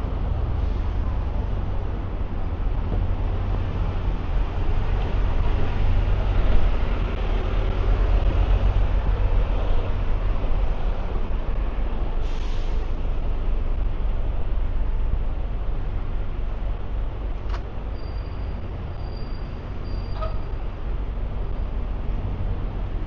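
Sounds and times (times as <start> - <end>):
deep traffic rumble: 0.0 - 23.0
passing vehicles: 0.0 - 23.0.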